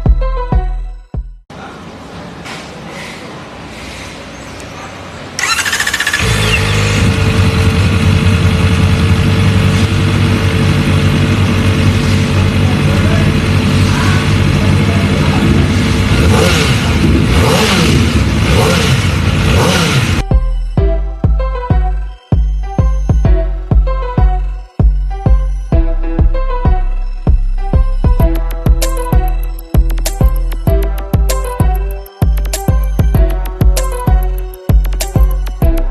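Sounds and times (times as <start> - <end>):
motorcycle engine starting and running: 5.3 - 20.3.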